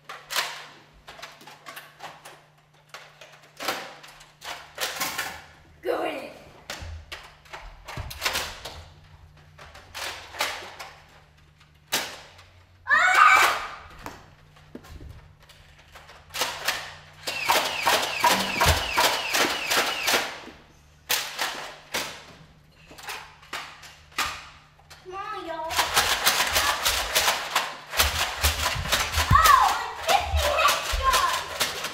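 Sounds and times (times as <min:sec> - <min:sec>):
foam dart blasters firing: 0:17.2 - 0:20.4.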